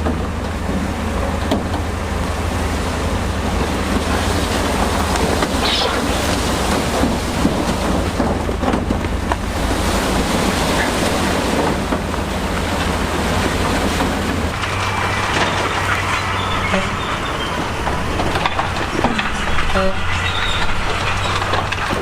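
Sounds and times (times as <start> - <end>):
diesel earthmoving machine running: 0.0 - 22.0
thin squeal: 14.7 - 21.5.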